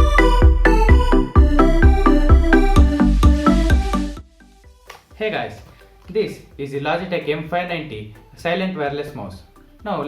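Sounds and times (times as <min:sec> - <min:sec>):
electronic music with driving beat: 0:00.0 - 0:07.6.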